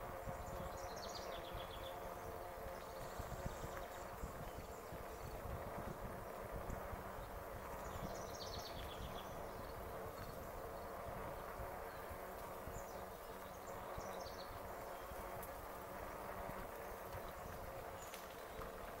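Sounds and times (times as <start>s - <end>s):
bike rolling noise: 0.0s - 19.0s
wind rumble: 0.0s - 19.0s
songbird chirping: 7.2s - 15.5s.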